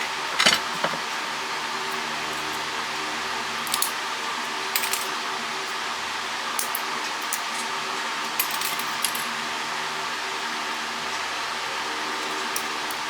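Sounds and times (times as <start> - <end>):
small metal parts clinking: 0.2 - 1.1.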